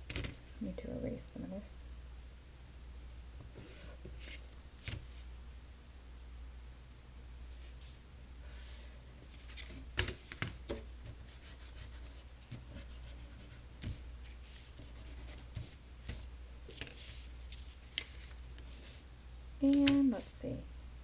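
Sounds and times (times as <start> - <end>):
steady low hum: 0.0 - 21.0
drawing tools scratching on paper: 11.0 - 16.3.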